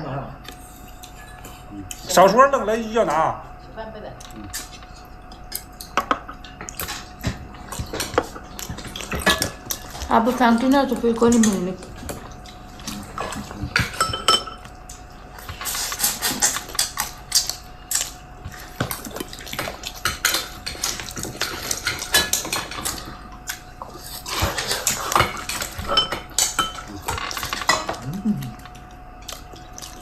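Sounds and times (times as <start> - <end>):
spoons and bowls clinking: 13.8 - 14.6.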